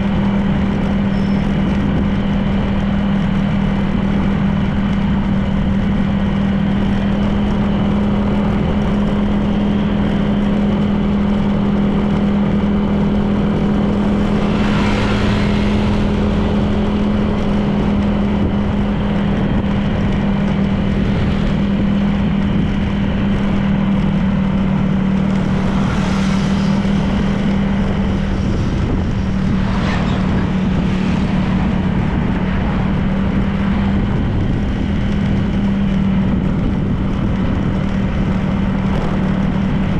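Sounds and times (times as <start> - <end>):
road noise: 0.0 - 39.9
scooter engine cruising: 0.0 - 39.9
brief rushes of noise: 14.0 - 17.7, 25.4 - 32.8.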